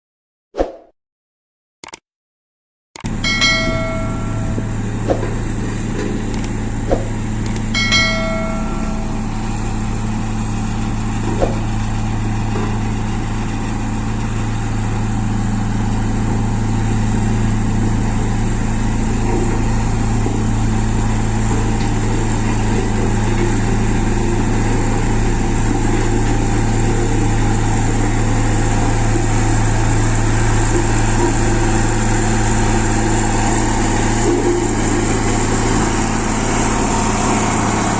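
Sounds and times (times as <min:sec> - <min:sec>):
diesel engine running: 0:03.0 - 0:37.9
bell-like chime: 0:03.2 - 0:04.8, 0:07.8 - 0:09.4.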